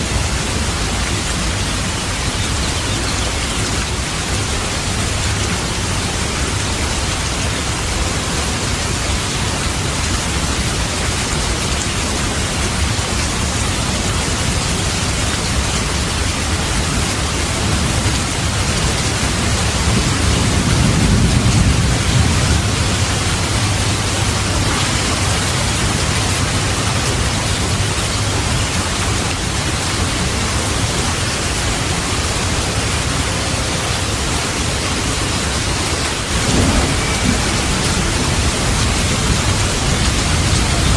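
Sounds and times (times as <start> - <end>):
heavy rain: 0.0 - 40.9
distant thunder rumble: 18.4 - 26.6, 36.2 - 40.9.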